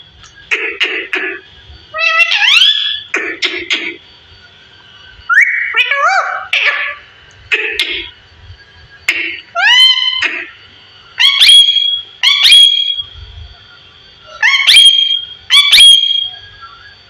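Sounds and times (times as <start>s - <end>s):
parrot whistled calls: 1.9s - 3.1s, 5.3s - 7.0s, 9.5s - 10.2s, 11.2s - 13.2s, 14.2s - 17.0s
parrot harsh squawks: 2.0s - 3.9s, 5.3s - 7.0s, 9.2s - 10.5s, 11.2s - 13.0s, 14.3s - 16.3s.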